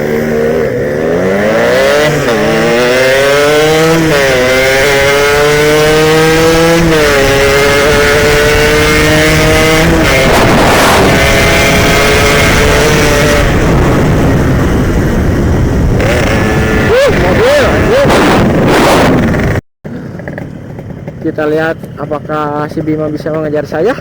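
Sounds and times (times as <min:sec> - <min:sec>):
two-stroke motorcycle engine revving: 0:00.0 - 0:22.5
rushing noise: 0:05.9 - 0:19.6.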